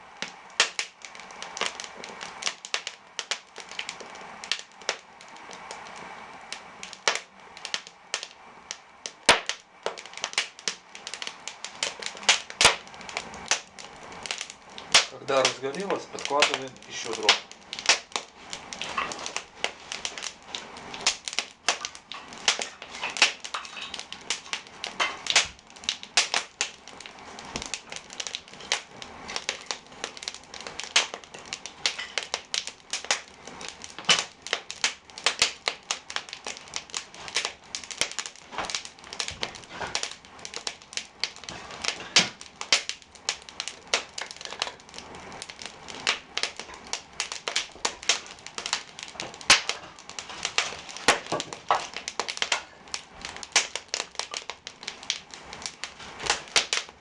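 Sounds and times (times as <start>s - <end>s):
firewood crackling and popping: 0.0s - 57.0s.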